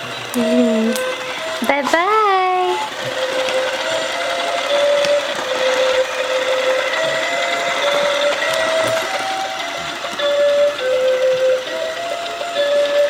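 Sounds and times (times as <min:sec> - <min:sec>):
electronic toy melody: 0:00.0 - 0:13.0.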